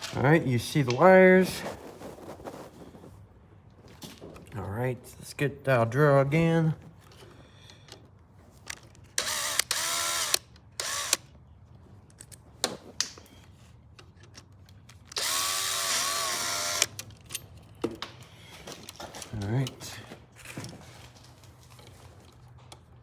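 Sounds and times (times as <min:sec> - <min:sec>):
power drill whining: 0:09.2 - 0:11.3, 0:15.2 - 0:17.0.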